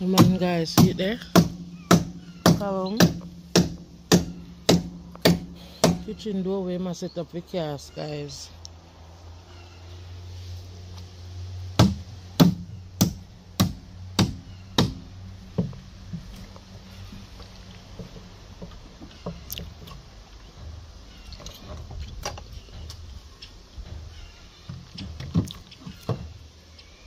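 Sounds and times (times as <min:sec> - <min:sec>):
tool knocking on wood: 0:00.1 - 0:06.1, 0:11.8 - 0:15.0, 0:15.6 - 0:15.8.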